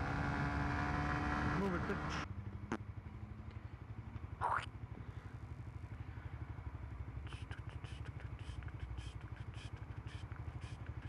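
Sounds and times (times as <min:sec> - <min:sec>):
motorcycle engine idling: 0:00.2 - 0:11.0.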